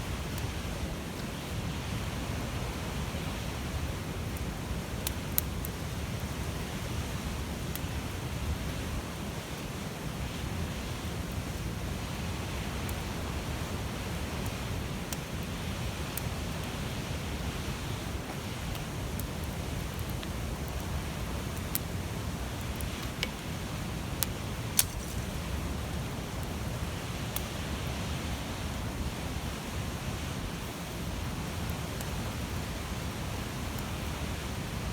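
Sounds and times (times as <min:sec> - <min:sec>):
flames rushing: 0:00.1 - 0:34.9
wood crackling and popping: 0:03.9 - 0:08.1, 0:12.4 - 0:28.0, 0:28.6 - 0:34.7.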